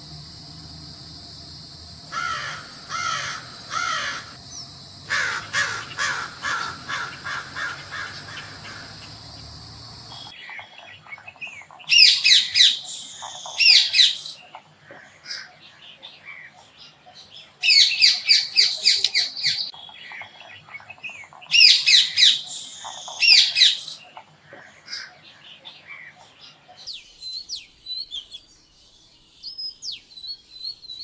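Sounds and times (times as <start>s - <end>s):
steady high hiss: 0.0s - 10.3s, 26.9s - 31.0s
crow cawing: 2.1s - 4.4s, 5.1s - 9.1s
bird chirping loudly: 26.9s - 31.0s.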